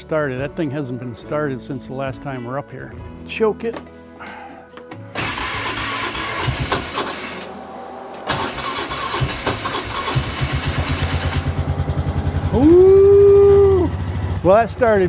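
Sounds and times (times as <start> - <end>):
atv engine cranking: 5.2 - 7.5, 8.2 - 14.5
atv engine running: 5.2 - 15.0.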